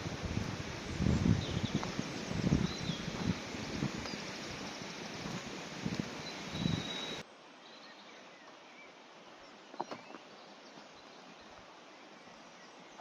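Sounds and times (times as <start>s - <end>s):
rustling noise: 0.0s - 7.2s
steady outdoor hiss: 0.0s - 13.0s
faint birdsong: 0.7s - 13.0s.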